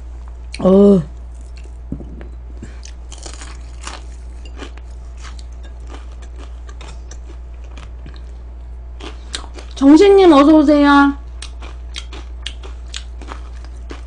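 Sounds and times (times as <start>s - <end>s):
low hum: 0.0s - 14.0s
crunching and chewing fried chicken: 1.2s - 1.9s, 2.7s - 9.8s, 11.2s - 14.0s.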